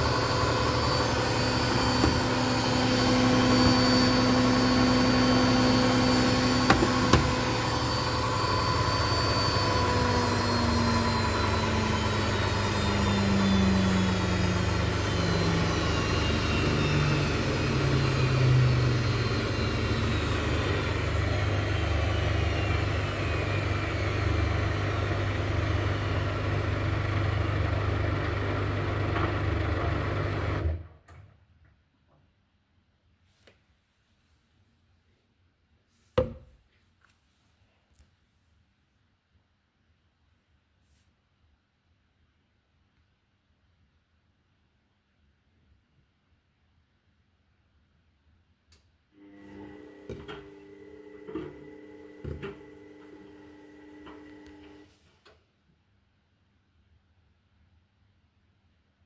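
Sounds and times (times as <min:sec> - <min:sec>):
washing machine spin whine: 0:00.0 - 0:31.0, 0:49.2 - 0:54.9.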